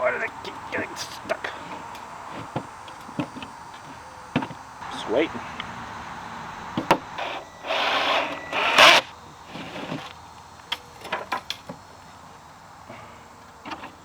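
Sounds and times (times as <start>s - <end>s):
handling clicks and knocks: 0.0s - 5.9s, 9.5s - 12.0s.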